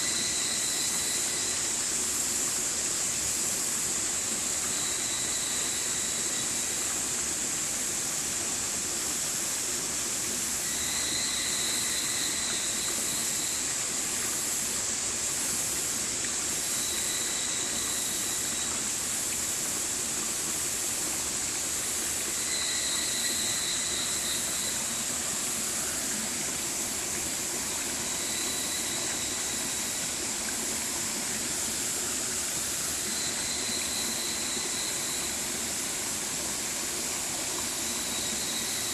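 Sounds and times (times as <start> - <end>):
stream water rushing: 0.0 - 38.9
faint high pitched tone: 22.3 - 26.0, 27.7 - 30.2, 33.0 - 35.6.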